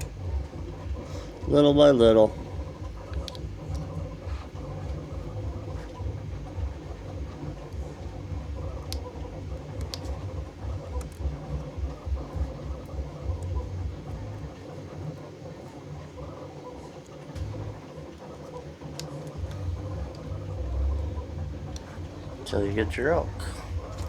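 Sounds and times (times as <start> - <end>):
faint steady hum: 0.0 - 24.0
stepper motors whirring: 0.0 - 24.0
light clicks: 2.6 - 15.1.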